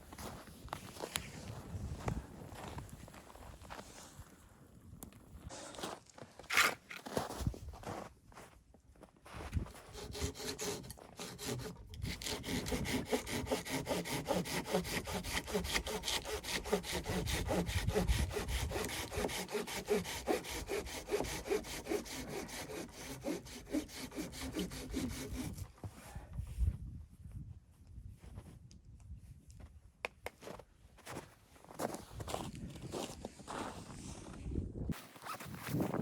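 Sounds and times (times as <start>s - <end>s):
hand saw cutting wood: 9.9s - 25.6s.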